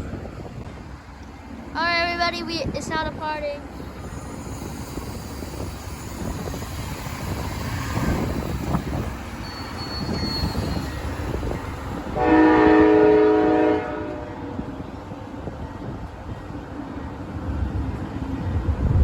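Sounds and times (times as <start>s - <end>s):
diesel locomotives rumbling: 0.0s - 19.0s
locomotive horn: 12.1s - 14.5s.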